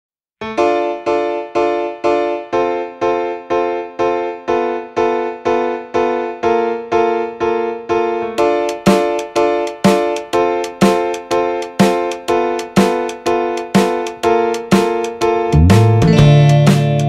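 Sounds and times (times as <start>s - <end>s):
piano-like keyboard chords: 0.4s - 17.0s.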